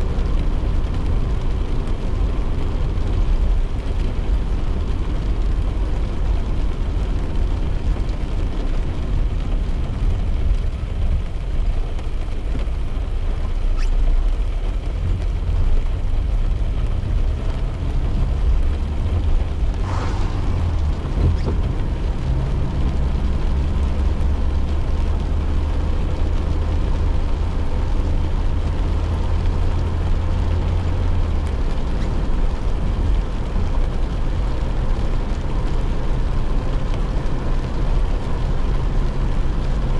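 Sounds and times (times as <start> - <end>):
car engine rumble: 0.0 - 39.9
rain hissing: 0.0 - 39.9
tyres on wet road: 0.0 - 39.9
brief sharp sound: 19.8 - 21.6.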